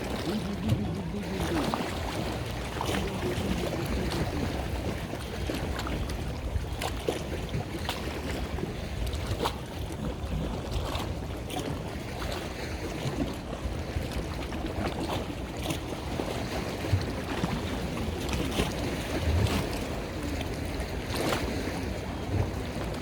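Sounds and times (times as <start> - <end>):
boat engine rumble: 0.0 - 23.0
water splashing and slapping: 0.0 - 23.0.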